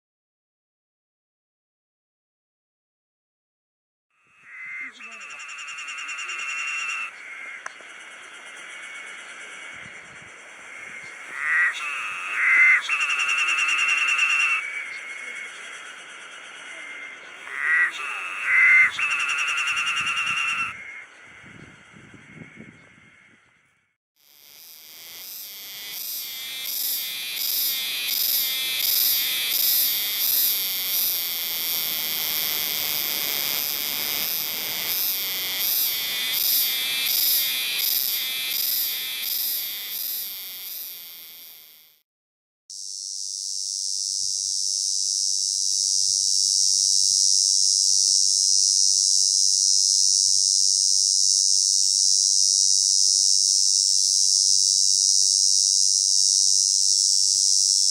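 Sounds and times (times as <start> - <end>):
pulsing cicada song: 4.2 - 42.0, 42.7 - 57.9
steady high cicada buzz: 4.2 - 42.0, 42.7 - 57.9.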